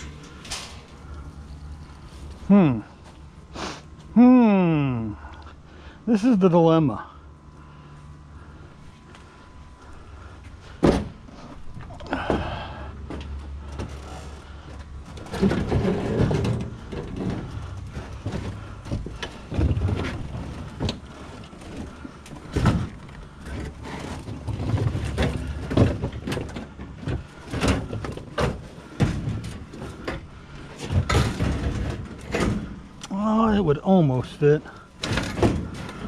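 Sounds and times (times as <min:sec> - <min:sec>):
scrap knocking and scraping: 0:12.2 - 0:32.8.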